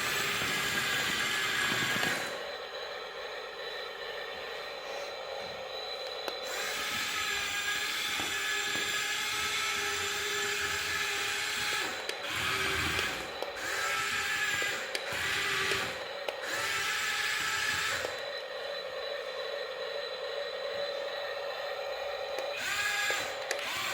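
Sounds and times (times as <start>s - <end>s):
electric toy motor whining: 0.0s - 2.5s, 6.0s - 18.7s, 22.3s - 23.9s.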